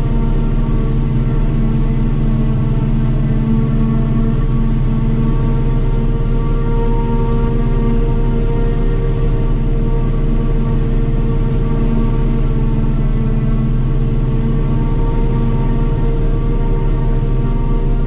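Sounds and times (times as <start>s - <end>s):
forage harvester deep drone: 0.0s - 18.0s
machine whine: 0.0s - 18.0s.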